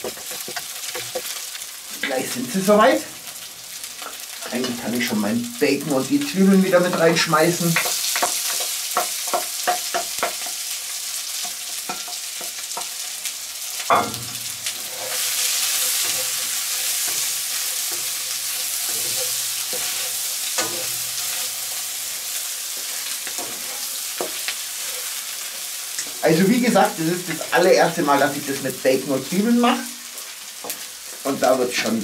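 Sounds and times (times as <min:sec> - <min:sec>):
wooden spatula scraping a wok: 0:00.0 - 0:05.2, 0:13.9 - 0:27.5
food sizzling in butter: 0:00.0 - 0:32.0
knocks against a wok: 0:13.9 - 0:14.4.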